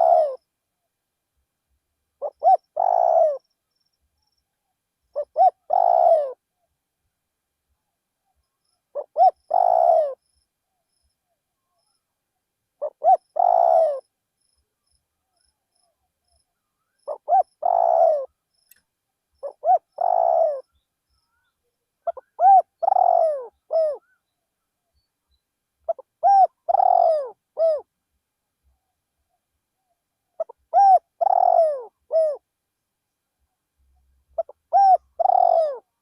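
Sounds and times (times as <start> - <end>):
dove cooing: 0.0 - 0.5, 2.2 - 3.5, 5.1 - 6.4, 8.9 - 10.2, 12.8 - 14.1, 17.0 - 18.3, 19.4 - 20.8, 22.0 - 24.2, 25.9 - 27.9, 30.4 - 32.4, 34.4 - 36.0.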